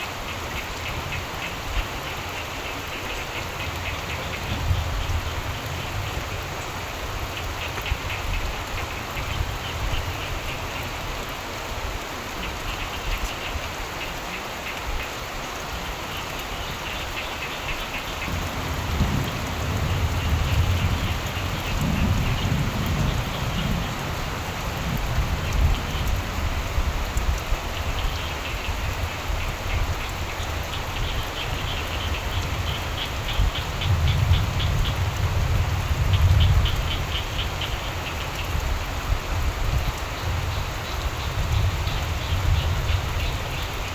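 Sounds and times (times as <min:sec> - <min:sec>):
steady rain: 0:00.0 - 0:43.9
frogs calling: 0:12.3 - 0:26.9, 0:27.6 - 0:39.0, 0:39.7 - 0:43.9
thunder rumbling: 0:18.2 - 0:26.9.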